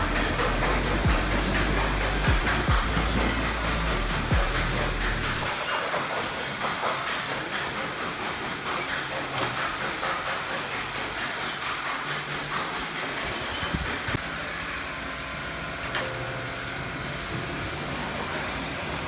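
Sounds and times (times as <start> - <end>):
low hum: 0.0 - 5.5.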